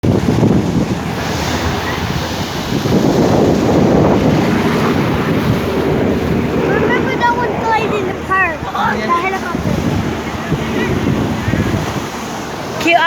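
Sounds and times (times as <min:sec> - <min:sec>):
sea waves breaking on shore: 0:00.0 - 0:13.0
wind buffeting microphone: 0:00.0 - 0:13.0.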